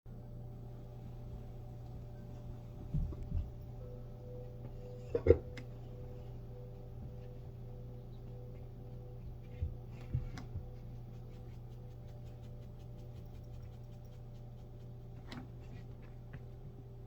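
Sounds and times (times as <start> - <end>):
low hum: 0.1 - 17.0.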